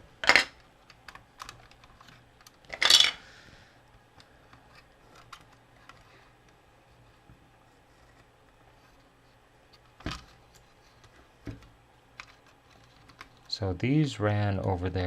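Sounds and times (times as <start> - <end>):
plastic parts rattling: 0.2 - 3.2.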